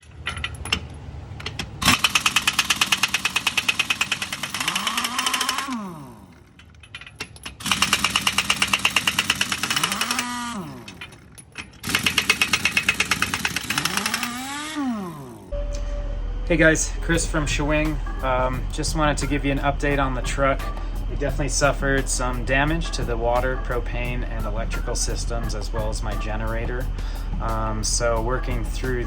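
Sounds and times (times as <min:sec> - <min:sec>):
impact wrench hammering: 0:01.4 - 0:15.5.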